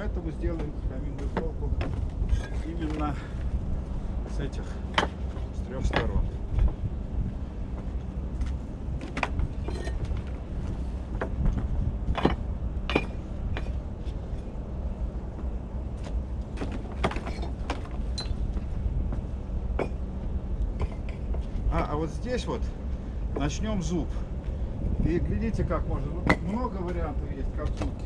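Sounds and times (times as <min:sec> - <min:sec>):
steady low hum: 0:00.0 - 0:28.0
bricks knocking and clinking: 0:12.1 - 0:13.7.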